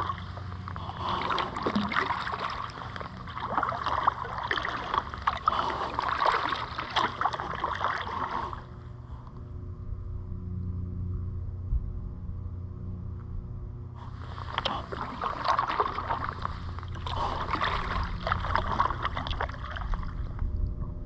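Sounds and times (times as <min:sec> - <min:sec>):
paddle splashing water: 0:00.0 - 0:08.7, 0:14.0 - 0:20.4
faint low hum: 0:00.0 - 0:21.0.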